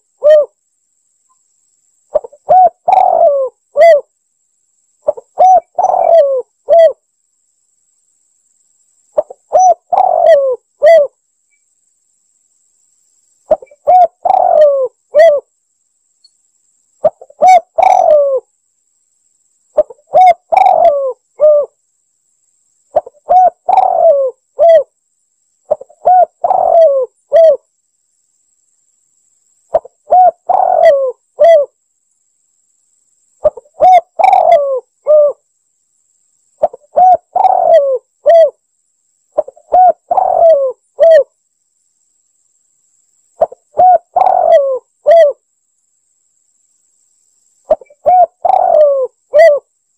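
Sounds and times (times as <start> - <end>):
dove cooing: 0.0 - 0.6, 2.1 - 4.1, 5.0 - 7.0, 9.2 - 11.1, 13.5 - 15.5, 17.0 - 18.4, 19.8 - 21.8, 22.9 - 24.9, 25.7 - 27.6, 29.7 - 31.8, 33.4 - 35.4, 36.6 - 38.6, 39.4 - 41.3, 43.4 - 45.4, 47.7 - 49.7.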